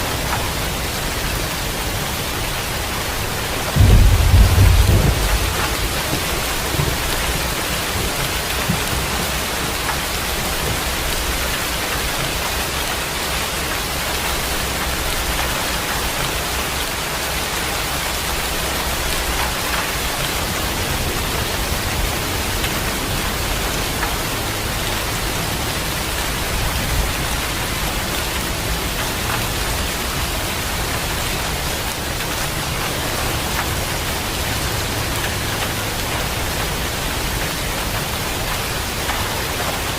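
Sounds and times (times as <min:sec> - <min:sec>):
heavy rain falling: 0:00.0 - 0:39.9
low thunder rumble: 0:02.8 - 0:11.5.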